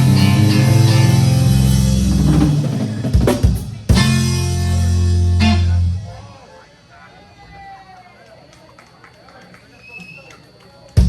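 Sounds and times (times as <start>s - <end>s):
live band playing: 0.0s - 6.3s.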